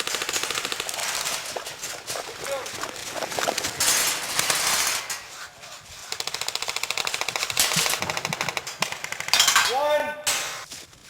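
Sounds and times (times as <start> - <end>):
airsoft gun firing full auto: 0.0 - 1.6, 6.1 - 9.8.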